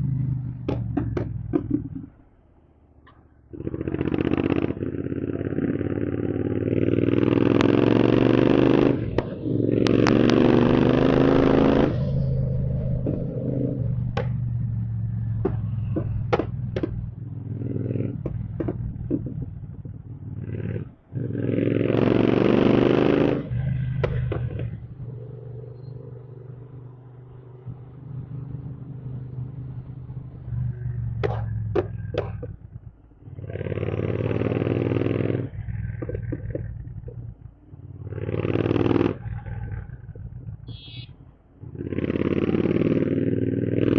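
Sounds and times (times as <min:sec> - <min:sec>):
motorcycle engine revving: 0:00.0 - 0:02.4, 0:03.1 - 0:43.9
exhaust pops and crackles: 0:00.2 - 0:02.3, 0:07.3 - 0:21.0, 0:23.4 - 0:25.2, 0:30.4 - 0:41.8
motorcycle engine idling: 0:35.6 - 0:41.9.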